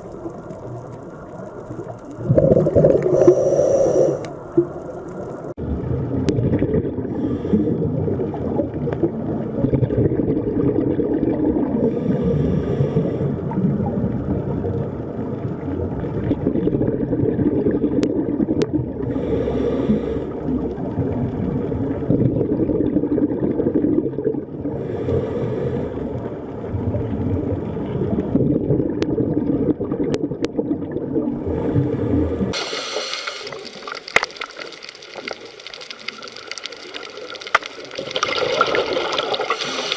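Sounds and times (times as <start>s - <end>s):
hissing bubbling bursts: 0.0s - 5.6s, 31.4s - 39.9s
dense low underwater rumble: 0.0s - 39.9s
bright rushing water hiss: 3.0s - 4.6s, 32.5s - 39.9s.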